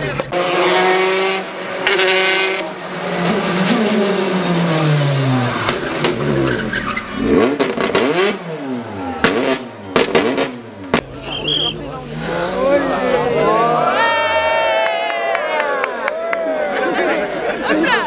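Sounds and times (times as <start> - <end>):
rally car engine revving: 0.0 - 13.8.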